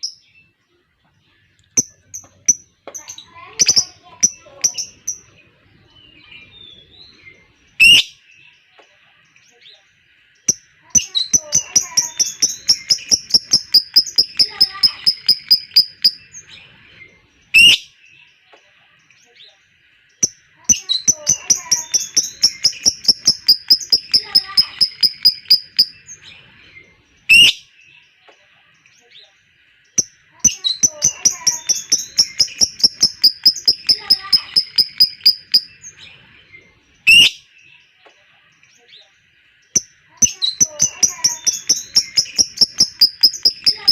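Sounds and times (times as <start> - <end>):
rapid high bird chirps: 10.4 - 16.5, 20.2 - 26.3, 29.9 - 36.1, 39.7 - 43.9
lovebird rapid high chatter: 11.0 - 16.3, 20.7 - 26.1, 30.4 - 35.8, 39.8 - 43.9.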